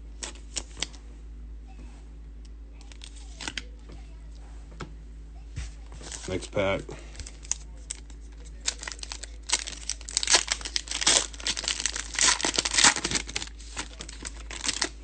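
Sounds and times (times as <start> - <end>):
foil wrapper tearing and crinkling: 2.9 - 3.6, 6.0 - 6.5, 7.2 - 15.0.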